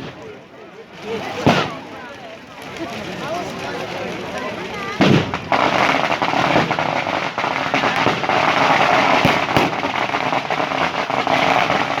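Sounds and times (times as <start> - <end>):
fireworks crackling: 0.0 - 12.0
sharp firework bangs: 1.4 - 1.9, 4.8 - 12.0.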